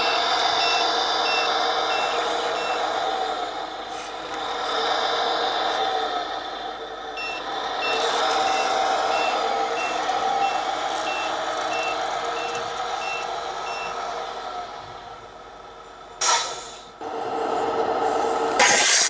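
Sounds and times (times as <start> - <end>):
reversing beeper: 0.0 - 2.9, 7.2 - 14.0
truck engine sound: 0.0 - 19.0.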